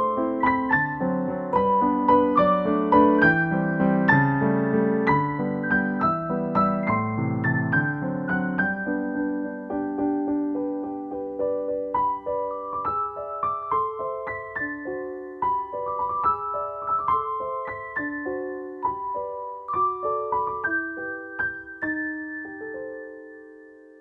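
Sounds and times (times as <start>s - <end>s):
piano-like keyboard melody: 0.0s - 24.0s.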